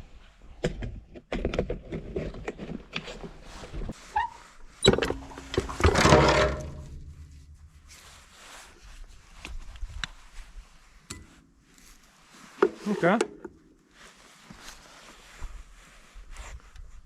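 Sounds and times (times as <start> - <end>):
metal scraping: 4.8 - 8.4.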